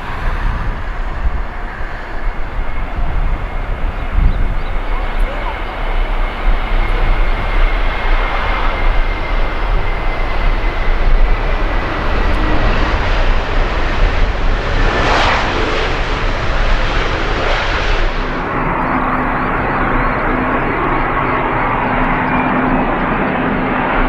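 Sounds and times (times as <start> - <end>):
high jet engine whine: 0.0 - 24.0
jet airliner passing: 0.0 - 24.0.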